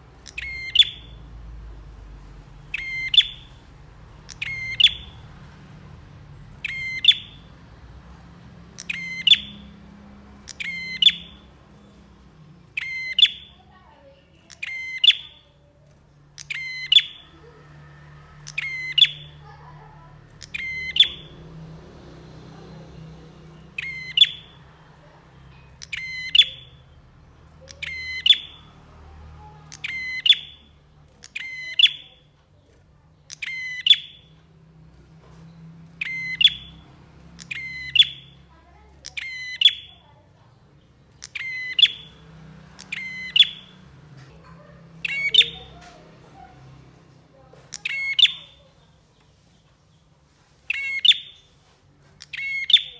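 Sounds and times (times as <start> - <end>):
faint low hum: 0.0 - 52.9.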